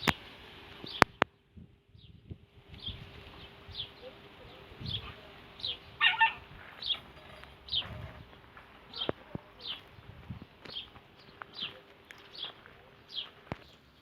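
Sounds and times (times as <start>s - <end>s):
small bird chirping: 0.8s - 8.3s
harsh bird squawk: 5.0s - 8.3s.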